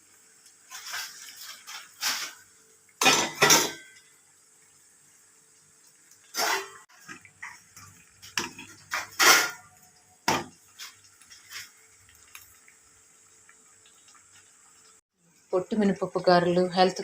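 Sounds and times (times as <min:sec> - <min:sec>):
utensils and dishes clattering: 0:00.7 - 0:02.4, 0:03.0 - 0:04.1, 0:06.3 - 0:11.7.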